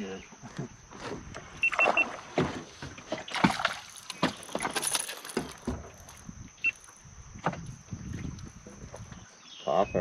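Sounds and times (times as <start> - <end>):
knocks and clatter in boat: 0.4 - 6.4, 7.4 - 9.3
light metallic jingle: 3.9 - 7.0.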